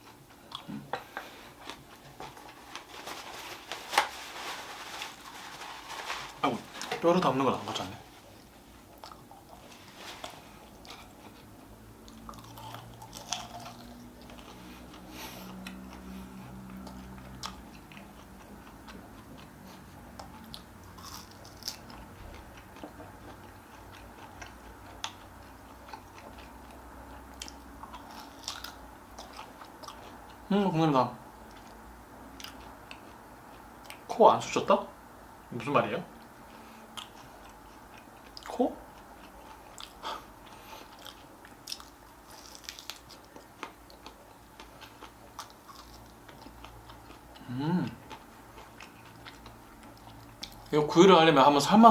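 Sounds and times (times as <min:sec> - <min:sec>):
chewing and biting: 0:08.3 - 0:30.5, 0:32.4 - 0:34.0, 0:36.9 - 0:50.8.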